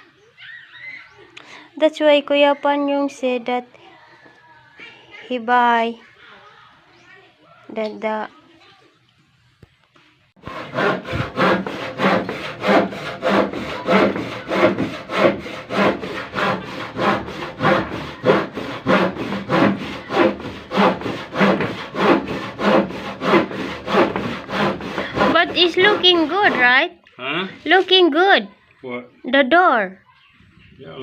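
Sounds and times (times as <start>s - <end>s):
hand saw cutting wood: 10.4s - 26.9s.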